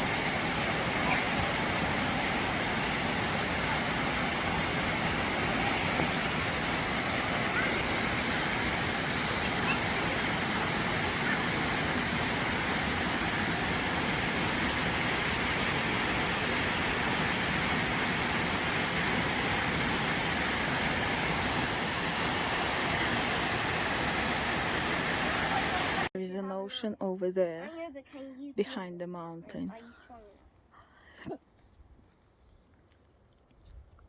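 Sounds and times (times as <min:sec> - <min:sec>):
waterfall rushing: 0:00.0 - 0:26.1.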